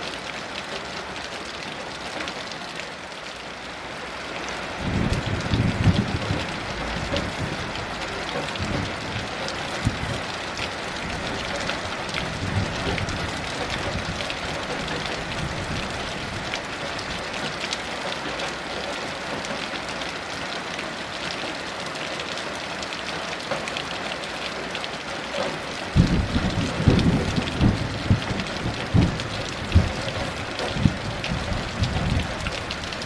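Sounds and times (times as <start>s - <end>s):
heavy rain: 0.0s - 33.0s
low rumble of thunder: 4.8s - 10.3s, 11.0s - 17.2s, 25.9s - 33.0s.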